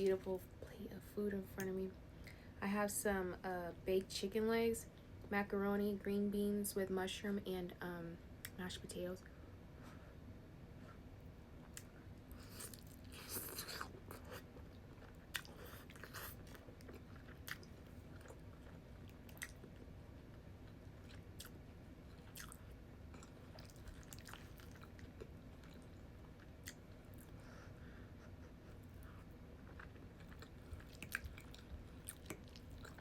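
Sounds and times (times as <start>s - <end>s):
person chewing food: 11.6s - 27.6s, 28.2s - 33.0s.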